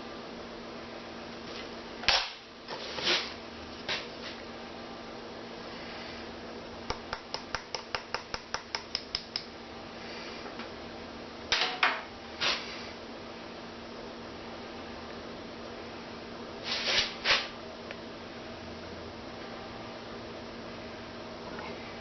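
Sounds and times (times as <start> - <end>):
short scraping sounds: 2.7 - 4.1, 16.6 - 17.5.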